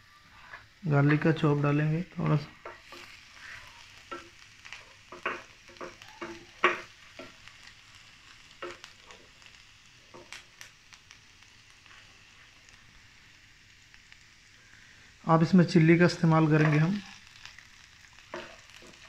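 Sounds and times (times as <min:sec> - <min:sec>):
garlic sizzling in oil: 0:00.0 - 0:19.0
spatula tapping and scraping pan: 0:02.6 - 0:03.2, 0:04.1 - 0:07.5, 0:08.6 - 0:09.1, 0:18.2 - 0:19.0.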